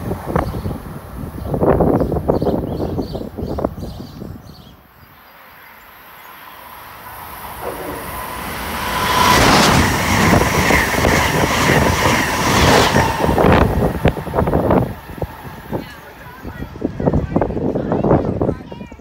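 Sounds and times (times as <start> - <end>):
train rushing past: 4.9 - 18.6
high whine: 6.2 - 11.7.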